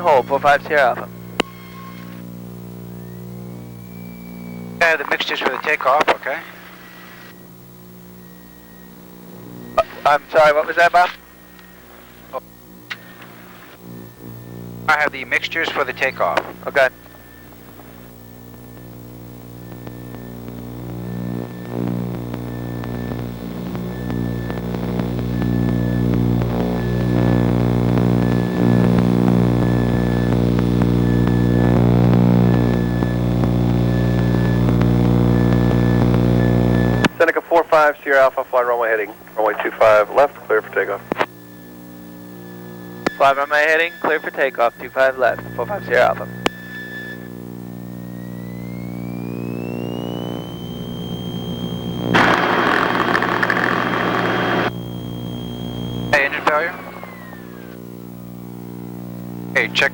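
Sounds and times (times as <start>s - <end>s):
piston aircraft engines droning: 0.0s - 37.2s, 37.9s - 59.9s.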